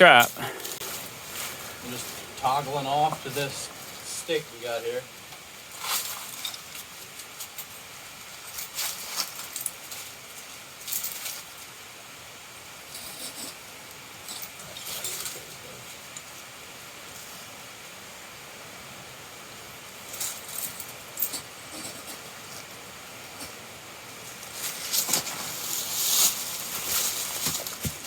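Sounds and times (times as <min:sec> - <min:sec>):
metallic clinks and scrapes: 0:05.8 - 0:11.5, 0:12.9 - 0:16.4, 0:20.1 - 0:22.7.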